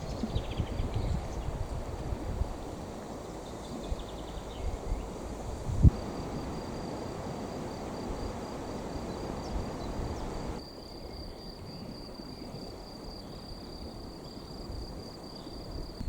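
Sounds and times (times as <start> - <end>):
low outdoor rushing: 0.0 - 10.6
crickets trilling: 0.0 - 16.0.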